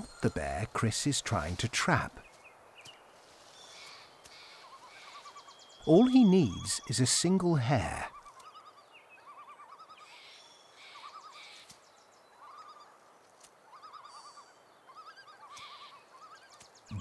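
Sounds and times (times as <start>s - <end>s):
bird warbling: 3.6s - 13.0s, 13.7s - 17.0s.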